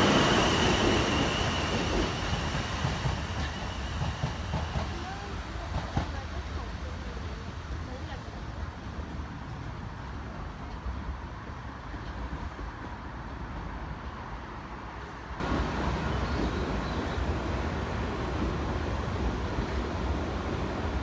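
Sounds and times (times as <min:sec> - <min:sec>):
vehicle rumble and hiss: 0:15.0 - 0:21.0.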